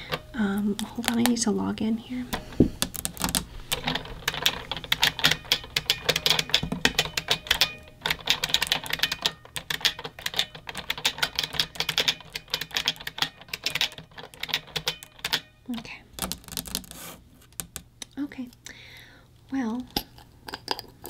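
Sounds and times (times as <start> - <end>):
mechanical keyboard typing: 2.4 - 15.5.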